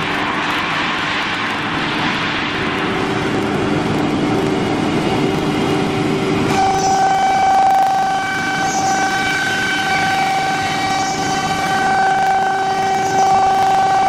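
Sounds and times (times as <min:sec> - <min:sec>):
cnc router running: 0:00.0 - 0:14.0
high whine: 0:00.0 - 0:14.0.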